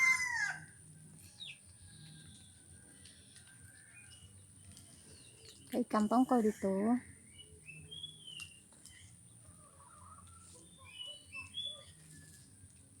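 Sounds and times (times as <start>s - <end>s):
faint bird chirps: 1.3s - 12.6s.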